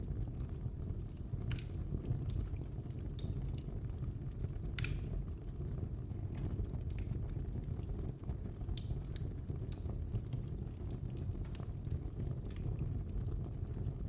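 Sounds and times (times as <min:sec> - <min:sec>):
fire burning with crackles: 0:00.0 - 0:14.0.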